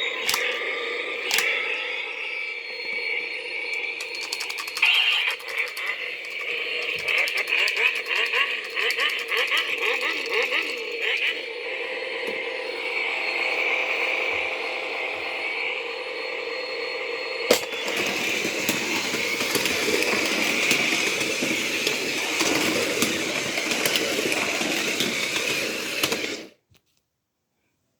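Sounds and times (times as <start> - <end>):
toy car engine sound effects: 0.0 - 1.8, 3.2 - 12.6, 17.5 - 26.6
plastic toys rattling: 4.0 - 10.8.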